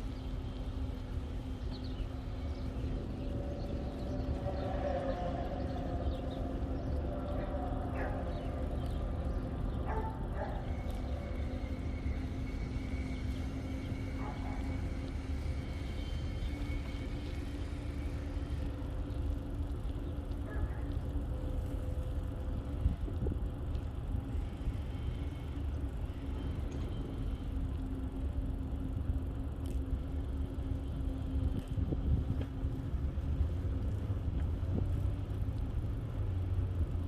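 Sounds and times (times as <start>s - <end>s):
constant hum: 0.0s - 37.0s
wind rumble on microphone: 0.0s - 37.0s.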